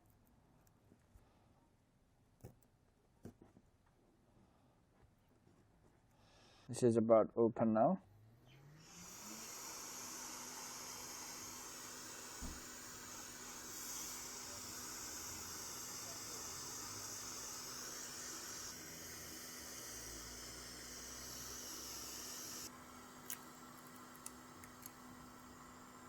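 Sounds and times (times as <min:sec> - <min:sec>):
heat gun blowing with hiss: 0:08.8 - 0:26.0.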